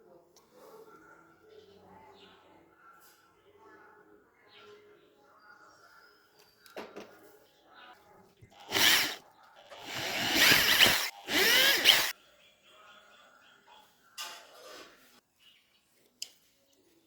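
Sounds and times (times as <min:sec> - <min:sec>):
small electric power tool running: 0:08.6 - 0:09.2, 0:09.8 - 0:12.1.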